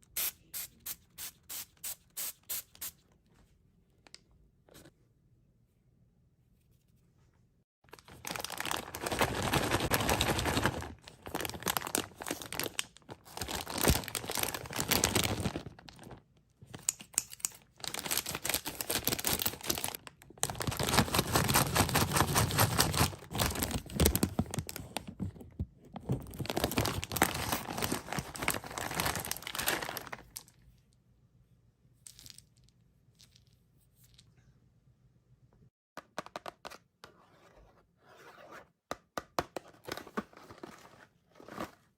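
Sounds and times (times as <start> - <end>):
plastic wrappers crinkling: 7.9 - 25.2, 26.1 - 30.6.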